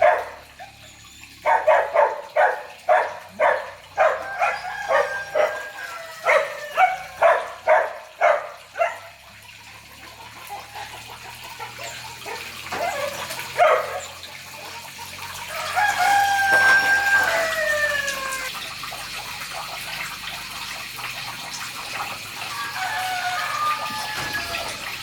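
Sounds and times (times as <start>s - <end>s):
rooster crowing: 4.0s - 7.2s, 15.4s - 18.5s, 22.4s - 25.0s.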